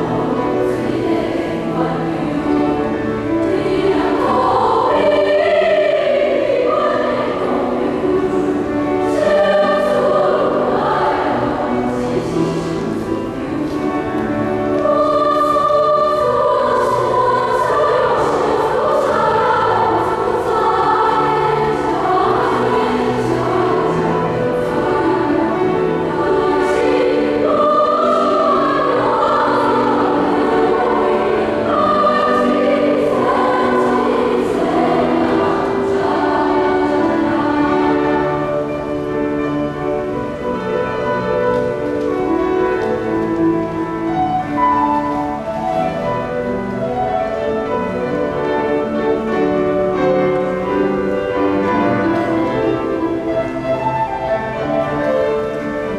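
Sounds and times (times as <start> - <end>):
choir singing: 0.0 - 55.9
instrumental accompaniment: 0.0 - 55.9.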